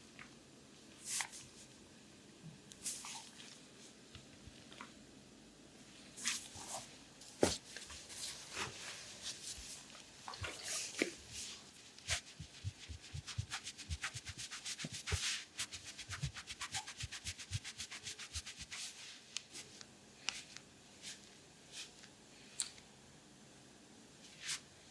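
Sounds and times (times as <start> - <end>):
hands rubbing oiled skin: 11.9 - 19.0.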